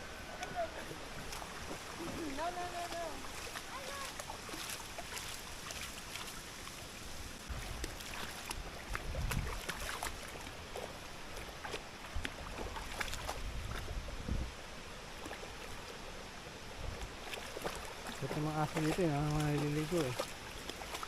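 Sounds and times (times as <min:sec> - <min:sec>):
river water running: 0:00.0 - 0:21.0
small water splashes: 0:00.2 - 0:14.2, 0:14.9 - 0:21.0
wind rumbling on microphone: 0:07.1 - 0:14.8, 0:16.6 - 0:20.4.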